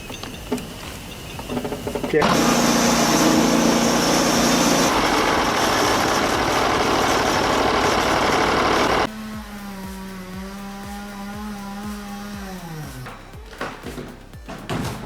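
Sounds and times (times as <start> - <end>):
loud engine running: 1.6 - 9.1.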